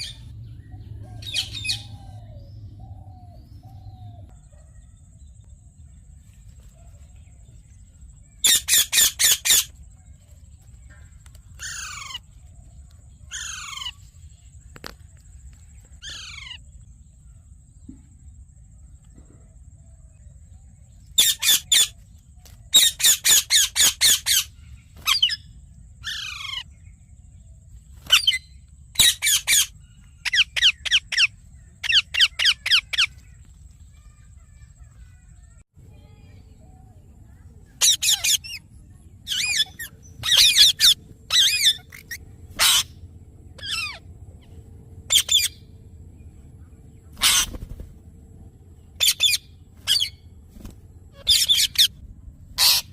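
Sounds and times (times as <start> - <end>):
parakeet squawking: 8.4 - 9.7, 37.8 - 38.6, 39.3 - 43.0, 43.6 - 44.0, 45.1 - 45.6, 47.2 - 47.7, 49.0 - 50.2, 51.2 - 51.9, 52.6 - 52.9.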